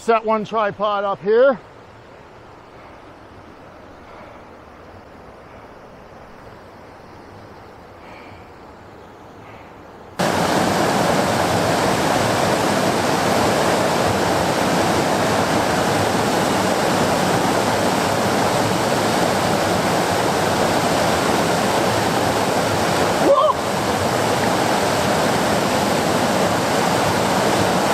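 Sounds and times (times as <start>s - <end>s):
river rapids rushing: 10.2s - 27.9s.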